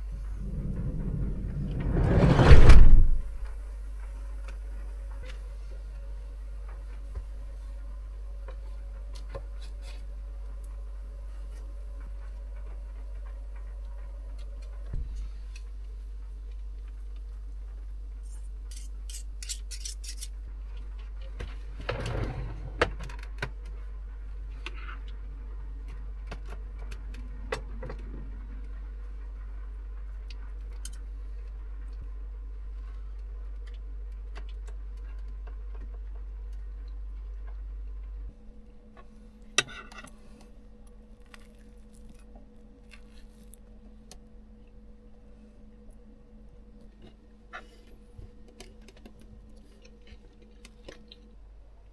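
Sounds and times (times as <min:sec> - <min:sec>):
low rumble: 0:00.0 - 0:03.8
steady low hum: 0:00.0 - 0:51.9.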